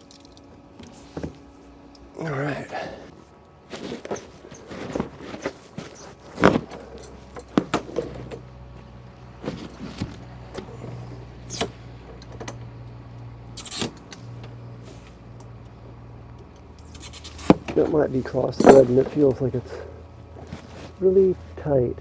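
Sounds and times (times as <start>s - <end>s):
steady low hum: 0.0s - 22.0s
metal tools clinking: 13.6s - 14.1s, 16.8s - 19.4s.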